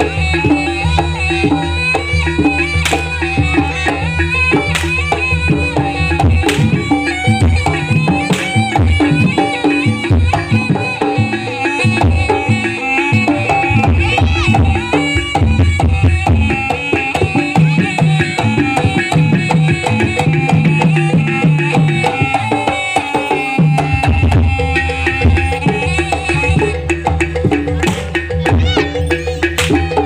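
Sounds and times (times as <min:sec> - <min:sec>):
hand drums beating: 0:00.0 - 0:30.0
held gamelan melodic tones: 0:00.0 - 0:30.0.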